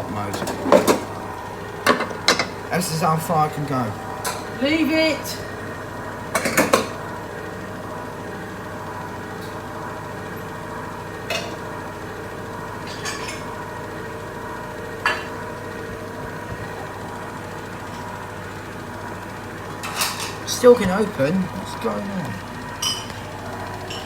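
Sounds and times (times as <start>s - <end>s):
washing machine humming: 0.0s - 24.0s.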